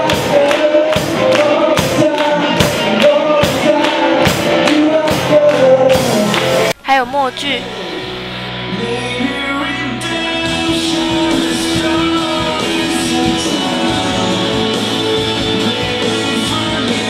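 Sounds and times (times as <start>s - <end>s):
live band playing pop gospel: 0.0s - 6.7s, 7.7s - 17.0s
person singing: 0.0s - 6.8s, 7.4s - 17.0s
guitar: 0.0s - 17.0s.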